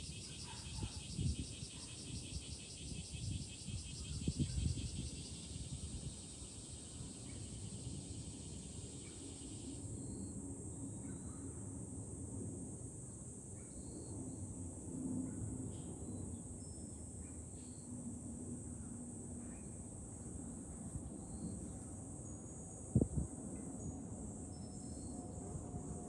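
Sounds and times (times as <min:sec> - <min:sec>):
cicada fast pulsing call: 0:00.0 - 0:14.5, 0:15.2 - 0:26.0
cicadas droning: 0:00.0 - 0:26.0
wind rumbling on microphone: 0:00.1 - 0:07.2, 0:22.8 - 0:23.9.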